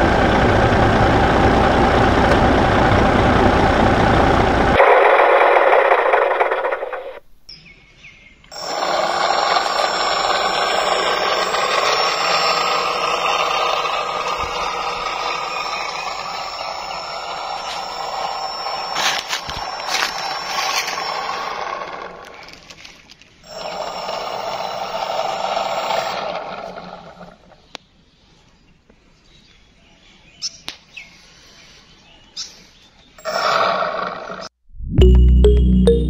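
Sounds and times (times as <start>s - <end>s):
small motor whining: 8.5s - 27.4s.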